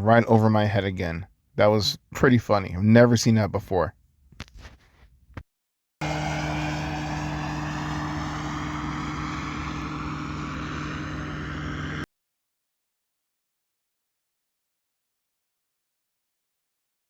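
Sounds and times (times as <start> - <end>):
ultralight aircraft engine drone: 6.0 - 12.1.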